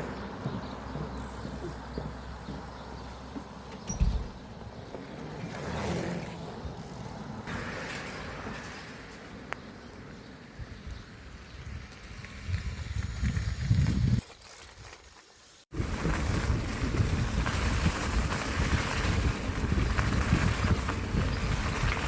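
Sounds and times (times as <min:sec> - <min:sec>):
wind buffeting microphone: 0:10.5 - 0:14.2, 0:15.7 - 0:22.0.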